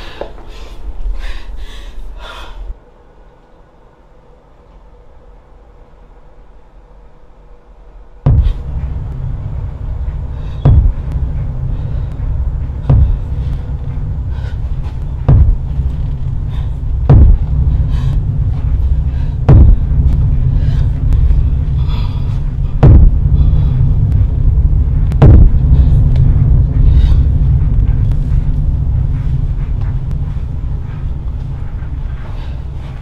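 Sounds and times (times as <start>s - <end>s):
deep continuous rumble: 6.0s - 33.0s
heavy thuds: 8.2s - 33.0s.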